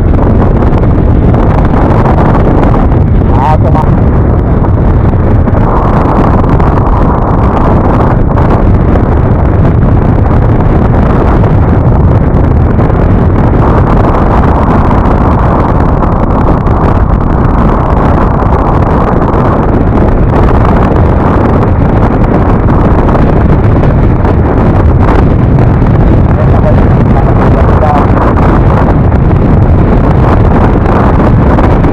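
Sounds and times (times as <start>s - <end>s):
road noise: 0.0s - 31.9s
wind rush on microphone: 0.0s - 31.9s.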